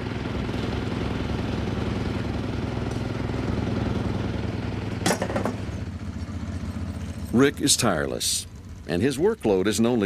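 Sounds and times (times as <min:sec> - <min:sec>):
engine humming steadily: 0:00.0 - 0:10.0.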